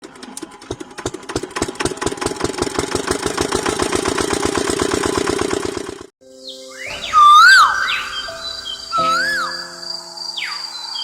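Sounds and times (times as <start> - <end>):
small diesel engine running: 0.0 - 6.2.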